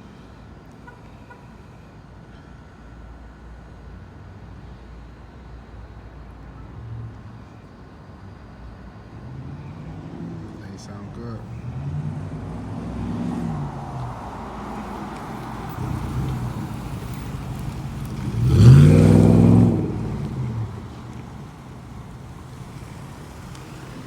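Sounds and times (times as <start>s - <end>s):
car engine revving: 9.2s - 24.0s.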